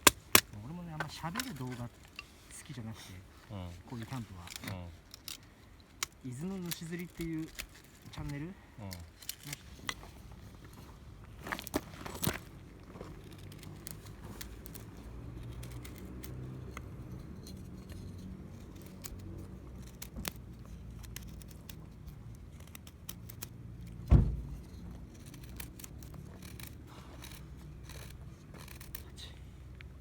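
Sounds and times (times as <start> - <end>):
low steady rumble: 0.0 - 30.0
loud thump: 24.1 - 24.6.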